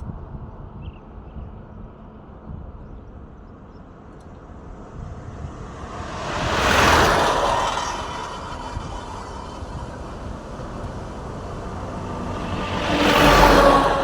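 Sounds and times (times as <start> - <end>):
low steady traffic rumble: 0.0 - 14.0
truck driving past: 4.5 - 14.0.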